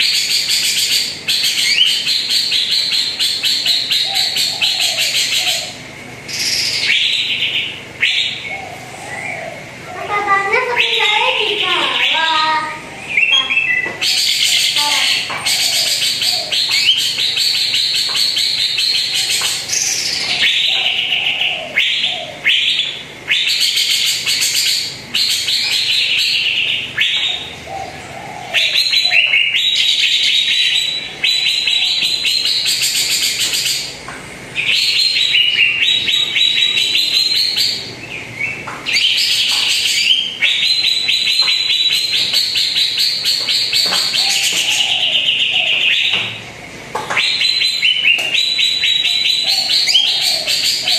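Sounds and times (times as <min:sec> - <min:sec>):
bird singing trilled high notes: 0:10.6 - 0:27.5, 0:28.6 - 0:34.0, 0:34.6 - 0:46.3, 0:47.2 - 0:50.9.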